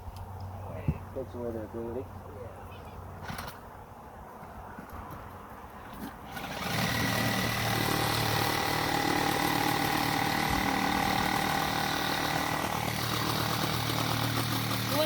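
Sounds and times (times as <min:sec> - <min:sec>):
motor running steadily: 0:06.5 - 0:15.0.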